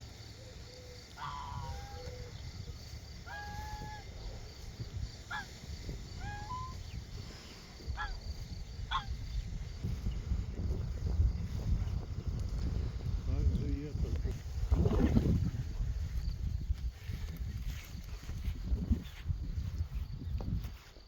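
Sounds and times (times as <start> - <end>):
geese honking: 0.2 - 9.2.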